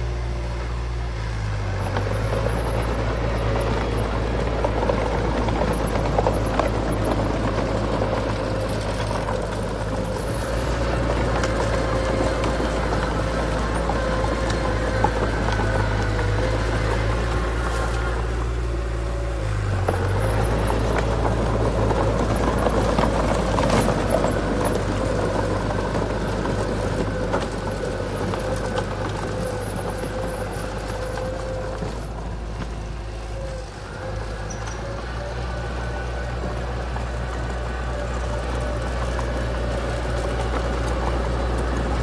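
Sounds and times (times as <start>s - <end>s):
heavy diesel machinery running: 0.0s - 42.0s.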